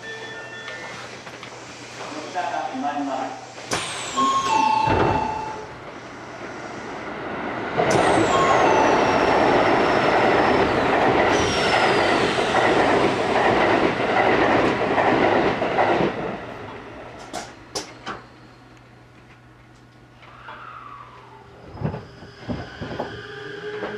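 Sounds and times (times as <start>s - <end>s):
wheels rushing on rail: 3.7s - 18.4s, 20.1s - 23.9s.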